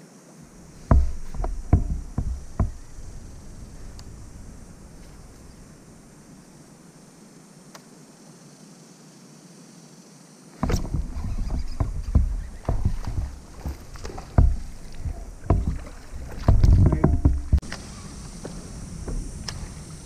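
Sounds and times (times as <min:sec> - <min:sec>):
knocks and thuds on a kayak: 0:00.5 - 0:05.7, 0:10.6 - 0:20.0.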